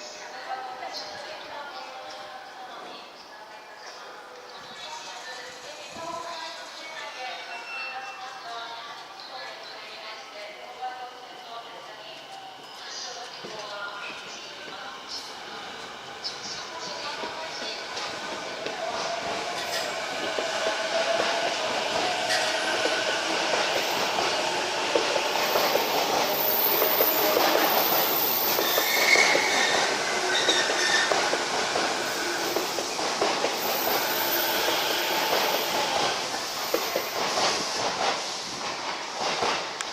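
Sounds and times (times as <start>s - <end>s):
electric train passing: 11.9s - 39.8s.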